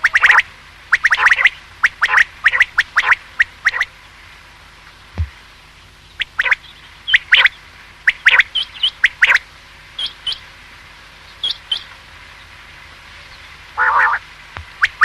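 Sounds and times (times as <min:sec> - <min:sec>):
quail calling: 0:00.0 - 0:04.0, 0:06.1 - 0:10.5, 0:11.4 - 0:12.0, 0:13.2 - 0:15.0.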